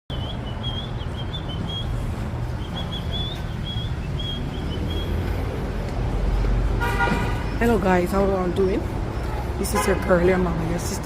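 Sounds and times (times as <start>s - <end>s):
small bird chirping: 2.6s - 5.2s.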